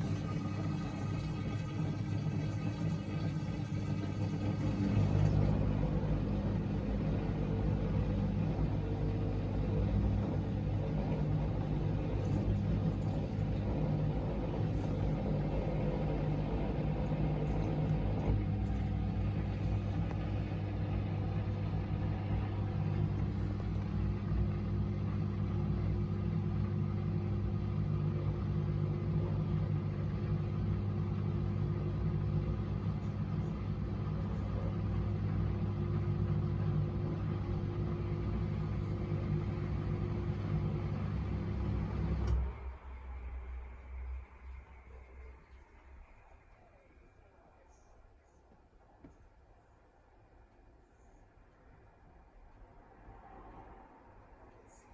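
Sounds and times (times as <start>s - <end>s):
rushing water in dishwasher: 0.0s - 31.0s
dishwasher motor hum: 0.0s - 46.9s.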